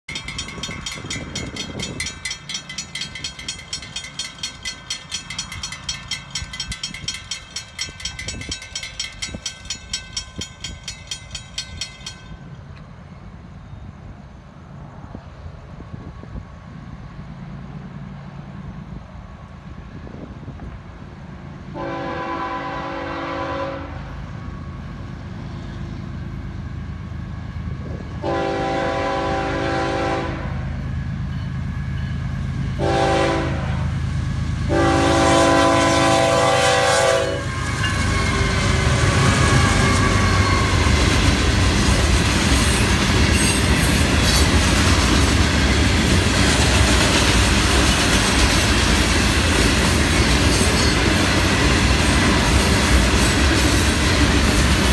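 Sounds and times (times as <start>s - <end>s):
train wheels clattering on rails: 0.1s - 13.4s, 24.2s - 54.9s
locomotive air horn blasts: 21.7s - 24.2s, 28.2s - 30.6s, 32.7s - 34.0s, 34.6s - 40.9s.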